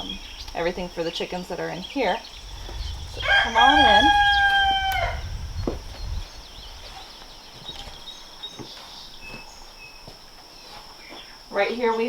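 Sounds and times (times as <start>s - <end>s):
rooster crowing: 2.4s - 6.6s.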